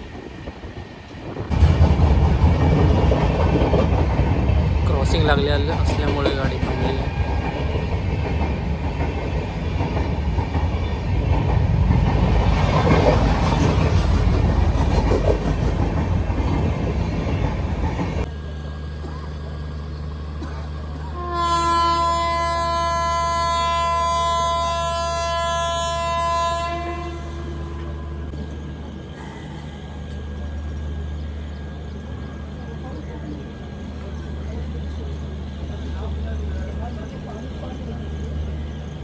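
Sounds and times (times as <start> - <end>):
train rumbling and clattering: 0.0 - 39.0
locomotive horn blast: 21.0 - 28.4.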